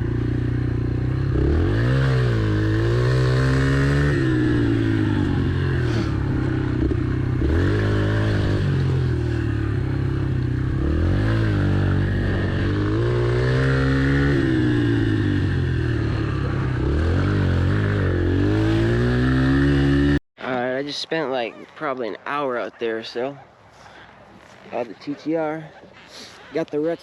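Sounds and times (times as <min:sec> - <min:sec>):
motorbike engine revving: 0:00.0 - 0:20.2.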